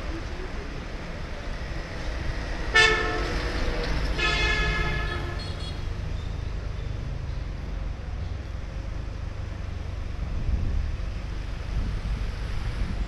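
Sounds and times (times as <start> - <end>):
low traffic rumble: 0.0 - 13.0
vehicle horn honking: 2.7 - 3.4, 4.2 - 5.8.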